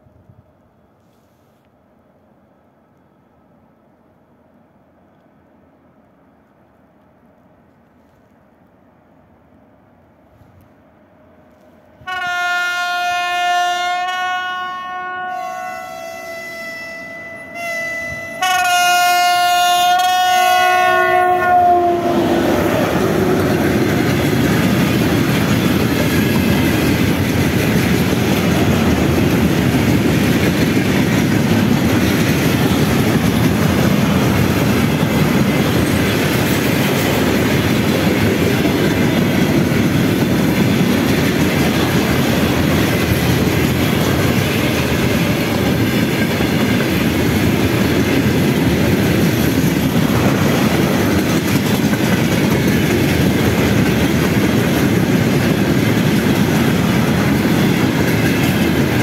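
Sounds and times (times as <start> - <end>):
train wheels on rail: 0.0 - 59.0
locomotive horn blasts: 12.0 - 22.7.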